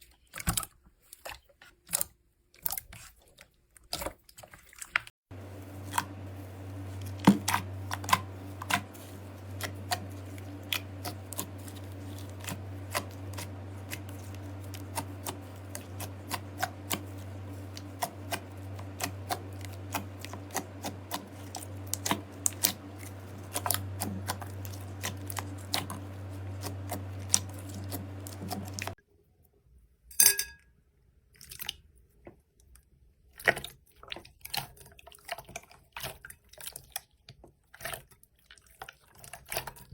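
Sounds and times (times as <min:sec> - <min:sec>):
steady low hum: 0:05.3 - 0:29.0.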